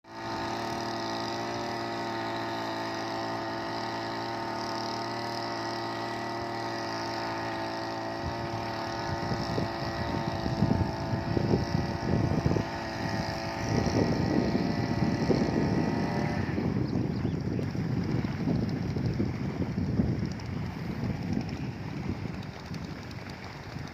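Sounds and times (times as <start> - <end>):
small petrol engine running: 0.1 - 23.9
low rumbling buffets: 7.9 - 23.9.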